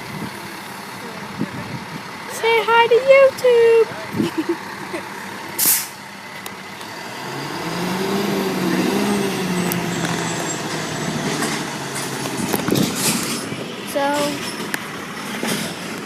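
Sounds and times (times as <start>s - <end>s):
truck engine pulling away: 0.0s - 16.0s
short sharp hiss: 5.6s - 6.0s.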